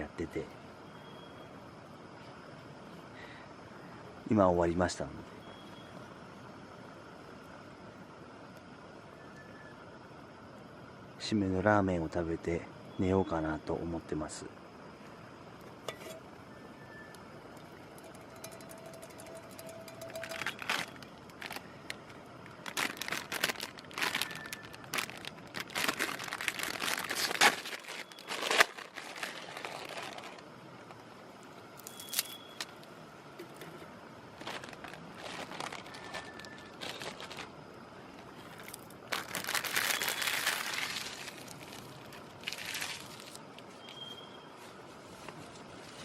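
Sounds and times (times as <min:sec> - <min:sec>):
plastic packaging crinkling: 0:18.4 - 0:30.5, 0:34.4 - 0:43.4.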